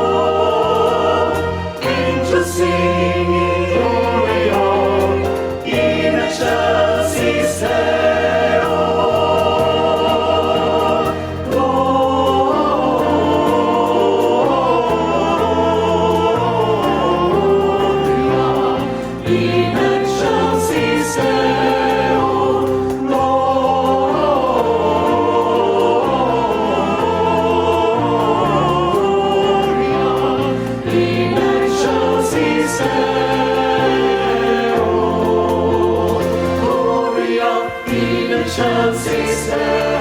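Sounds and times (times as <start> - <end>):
choir singing: 0.0 - 40.0
instrumental accompaniment: 0.0 - 40.0.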